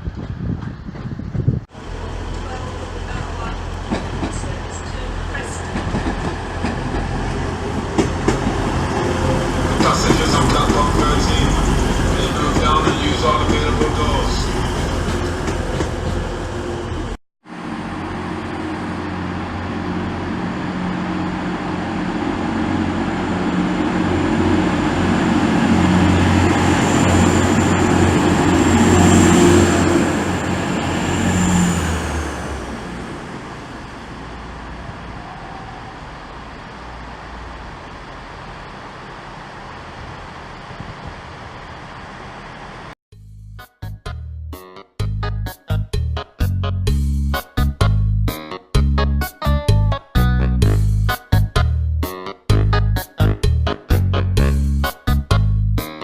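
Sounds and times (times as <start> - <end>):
train engine and wheels passing: 0.0 - 43.0.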